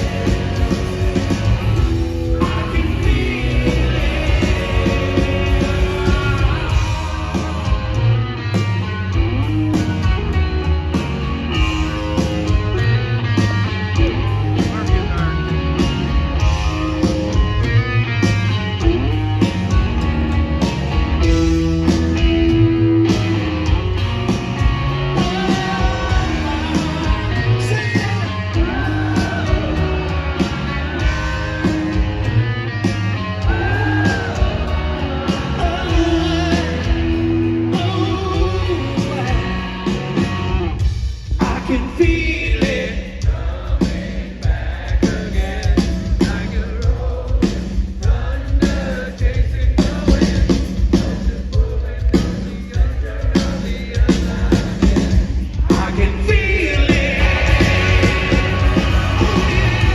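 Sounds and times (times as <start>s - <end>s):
live rock band playing: 0.0s - 59.9s
person singing: 33.4s - 40.0s.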